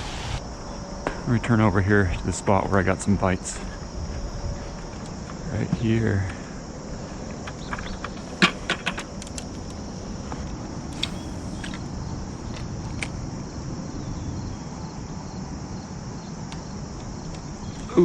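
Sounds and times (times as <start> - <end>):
road traffic rumble: 0.0 - 0.6, 6.3 - 15.5
insect drone: 0.0 - 18.0.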